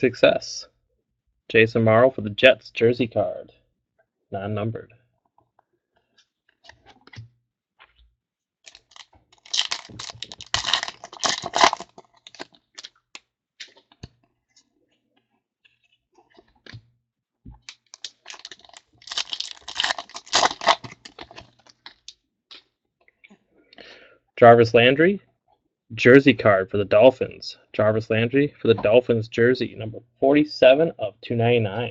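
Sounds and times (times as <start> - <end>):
foil wrappers tearing and crinkling: 8.7 - 13.0, 17.6 - 22.0.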